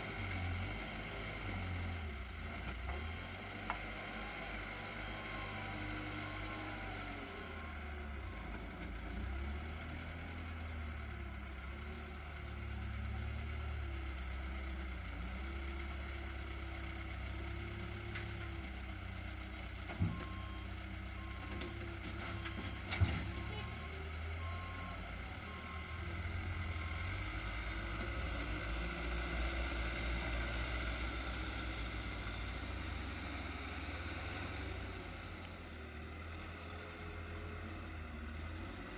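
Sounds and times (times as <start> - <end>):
truck engine rumbling: 0.0 - 38.9
reversing beeper: 22.3 - 27.2.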